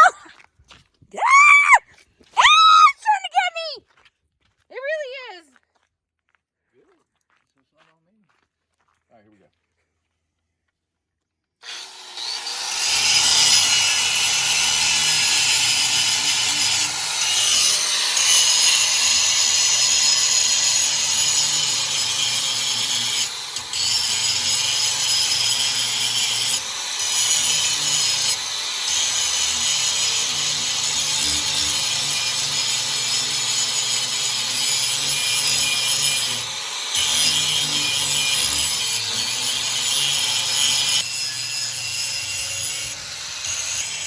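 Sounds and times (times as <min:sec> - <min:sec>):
angle grinder grinding steel: 0:11.6 - 0:44.0.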